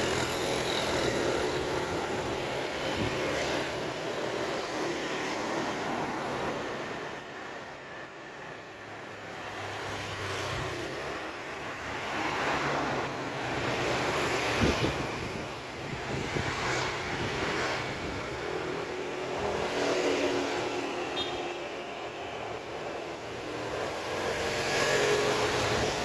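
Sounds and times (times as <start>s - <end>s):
vehicles passing on street: 0.0s - 26.0s.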